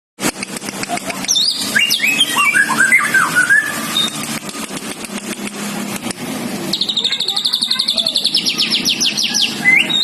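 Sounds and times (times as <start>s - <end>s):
rapid sharp clicks: 0.2s - 1.4s, 4.0s - 6.3s
songbird whistling descending notes: 1.3s - 4.3s, 6.7s - 10.0s.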